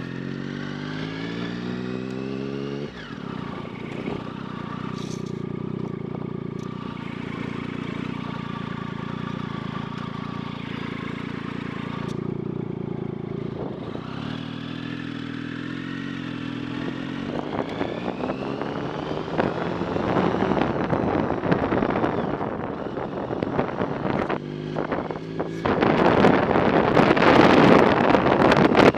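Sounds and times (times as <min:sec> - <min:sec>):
motorcycle engine running: 0:00.0 - 0:28.9
wind buffeting on microphone: 0:17.3 - 0:28.9.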